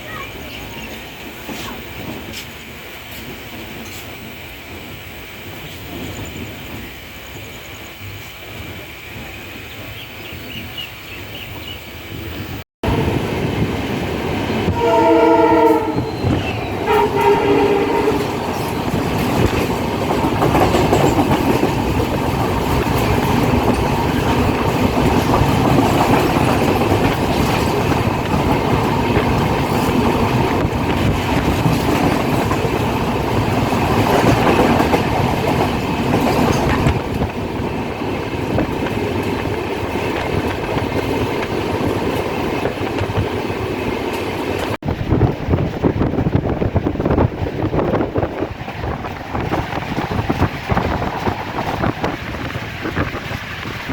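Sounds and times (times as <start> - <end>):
train rumbling on rails: 0.0 - 53.9
train horn blasts: 14.6 - 18.4.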